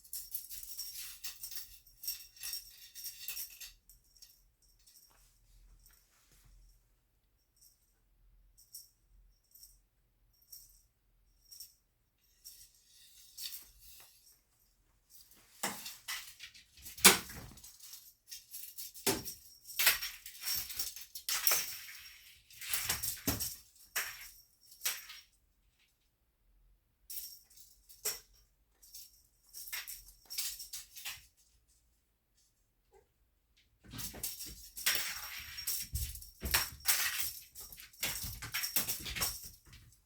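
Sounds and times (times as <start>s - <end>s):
cat wand toy jingling and rattling: 0.0s - 6.5s, 10.4s - 25.4s, 27.1s - 31.4s, 33.8s - 40.0s.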